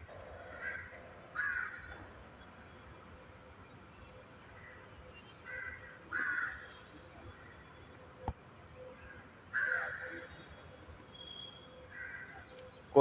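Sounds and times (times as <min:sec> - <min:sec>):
bird calling: 0:08.8 - 0:12.8.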